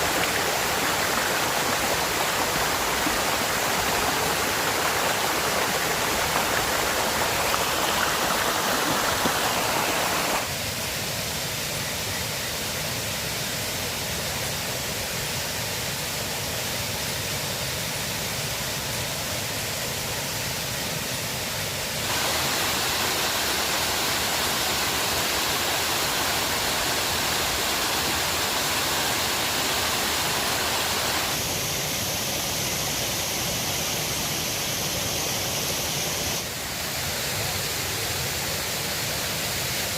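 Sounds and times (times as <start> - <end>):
flowing river water: 0.0 - 39.9.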